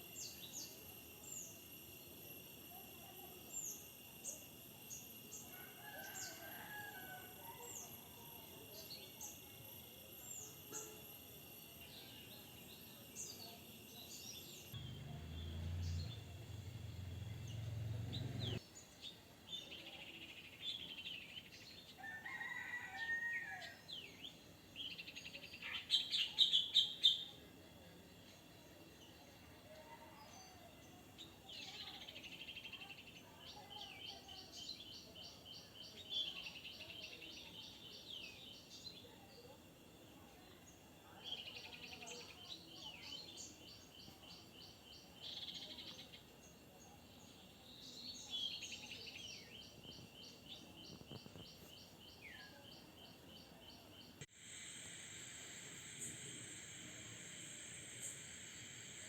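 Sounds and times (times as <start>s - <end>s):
low hum: 14.8s - 18.6s.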